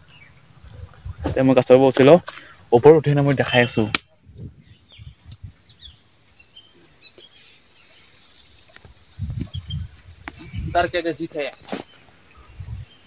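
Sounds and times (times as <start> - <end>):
steady high hiss: 0.0 - 13.0
high bird chirps: 3.5 - 13.0.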